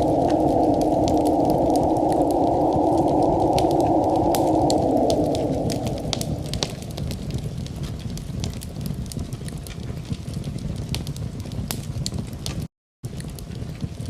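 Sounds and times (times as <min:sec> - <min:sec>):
hiss: 0:00.0 - 0:07.1
wood fire crackling: 0:00.0 - 0:14.0.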